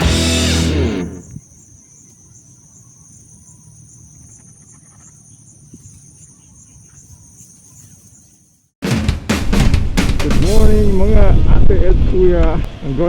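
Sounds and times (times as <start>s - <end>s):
crickets chirring: 1.1s - 8.8s.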